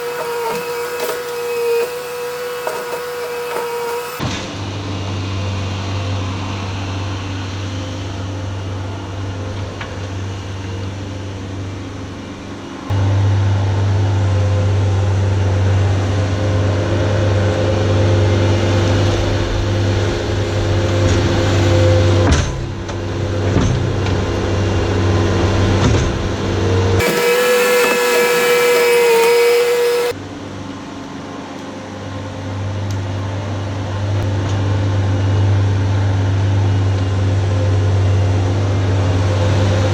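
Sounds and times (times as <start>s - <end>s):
skid steer engine running: 27.0s - 30.1s.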